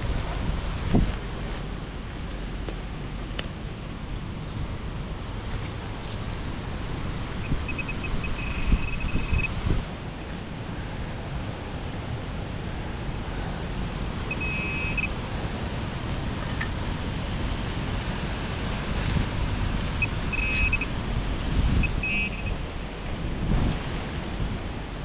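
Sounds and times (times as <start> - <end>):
wind buffeting microphone: 0.0 - 25.0
metal detector beeps: 7.4 - 9.6, 14.2 - 15.2, 20.0 - 20.9, 21.8 - 22.7.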